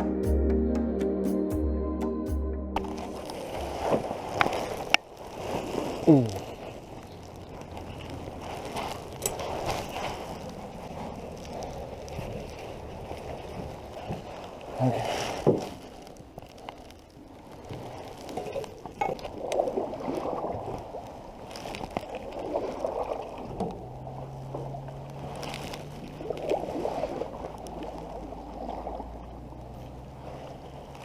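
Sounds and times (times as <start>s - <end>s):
steady low hum: 0.0s - 4.6s
water swishing around paddle: 3.0s - 31.0s.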